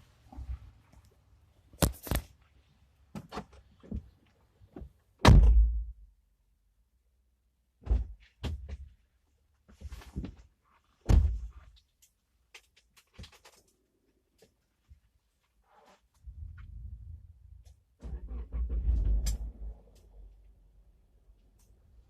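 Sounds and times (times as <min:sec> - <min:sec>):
heavy thunk: 0:05.2 - 0:05.9.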